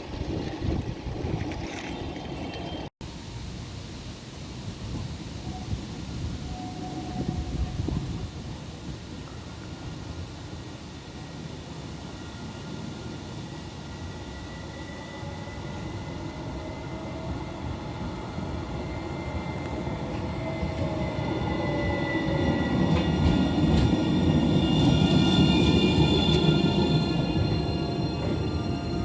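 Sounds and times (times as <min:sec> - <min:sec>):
tram running noise: 0:00.0 - 0:02.9, 0:04.9 - 0:29.0.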